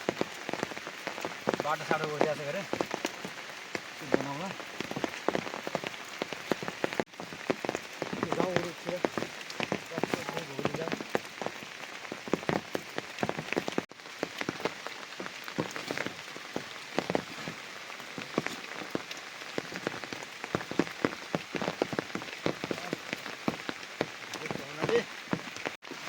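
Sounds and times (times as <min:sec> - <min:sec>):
heavy rain falling: 0:00.0 - 0:26.0
raindrops striking hard: 0:00.0 - 0:26.0.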